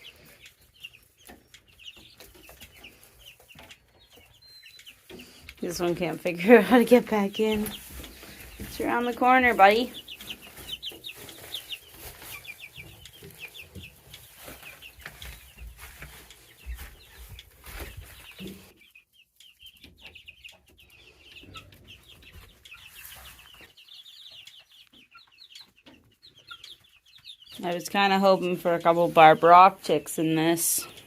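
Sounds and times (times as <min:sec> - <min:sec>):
baby chicks peeping: 0:00.0 - 0:31.0.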